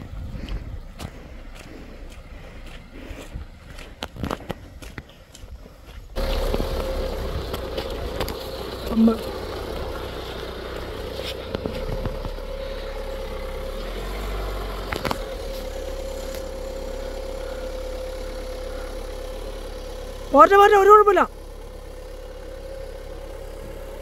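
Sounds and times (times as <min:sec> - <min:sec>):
small car engine running: 0:06.2 - 0:24.0.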